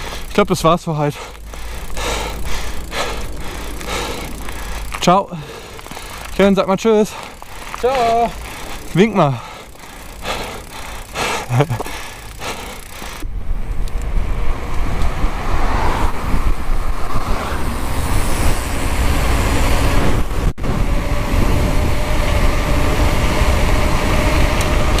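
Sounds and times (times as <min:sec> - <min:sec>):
mountain bike rolling rumble: 0:00.0 - 0:25.0
wind on camera microphone: 0:13.3 - 0:25.0.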